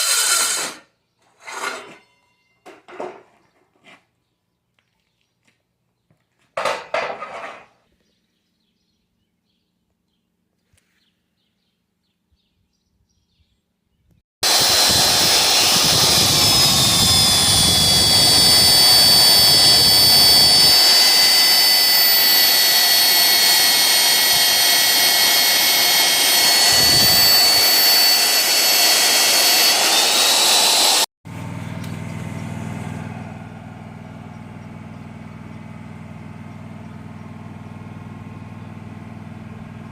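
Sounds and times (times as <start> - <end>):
power tool whining on steel: 14.4 - 34.3
engine idling: 31.3 - 39.9.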